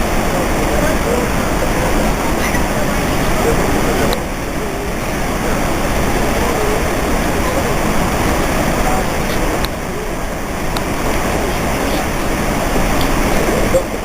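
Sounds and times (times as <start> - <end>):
faint voices: 0.0 - 14.0
waterfall roaring: 0.0 - 14.0.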